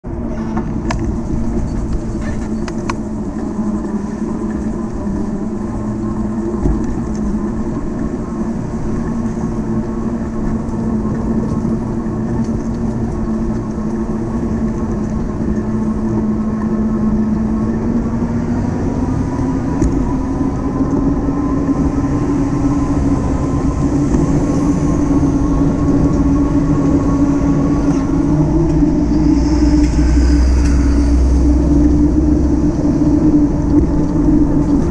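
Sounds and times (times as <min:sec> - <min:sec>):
wind and road noise: 0:00.0 - 0:34.9
electric bike motor hum: 0:00.1 - 0:34.9.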